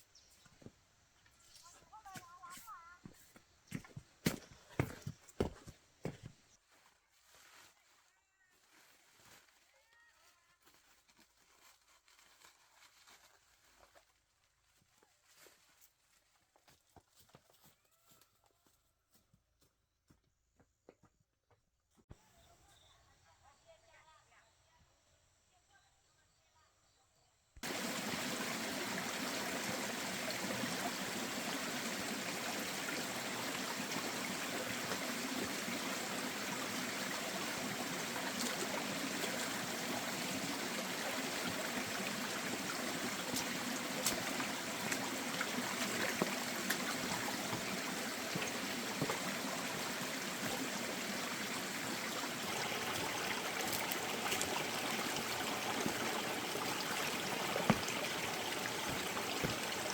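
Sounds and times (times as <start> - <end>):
running water: 27.6 - 59.9.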